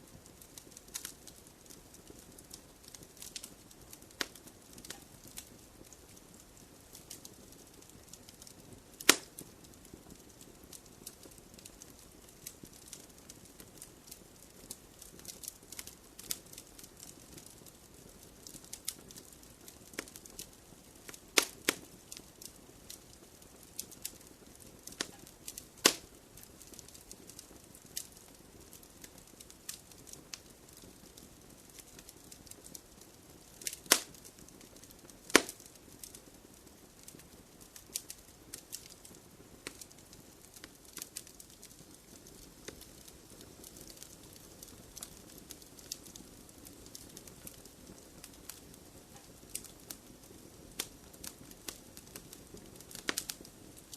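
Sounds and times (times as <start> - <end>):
wood fire crackling: 0.0 - 53.9
logs popping: 33.6 - 34.2, 35.3 - 35.6.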